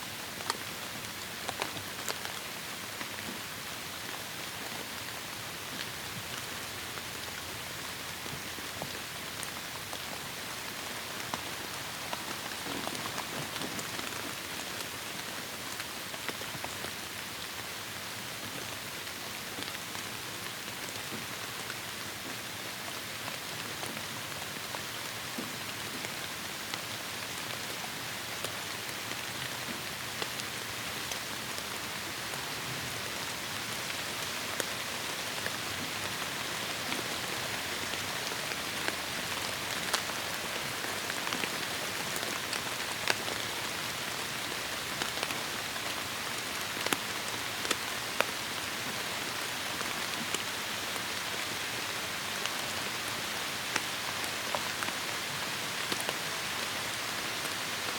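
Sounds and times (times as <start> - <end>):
heavy rain on foliage: 0.0 - 57.9.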